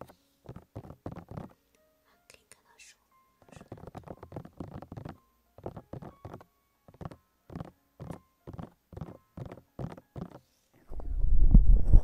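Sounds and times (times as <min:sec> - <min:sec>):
feather scratching microphone: 0:10.9 - 0:12.0.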